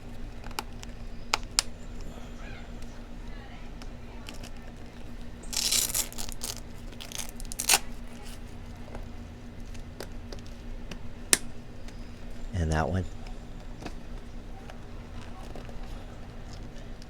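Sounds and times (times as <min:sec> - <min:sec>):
boot straps rasping rustle: 0:05.4 - 0:08.5.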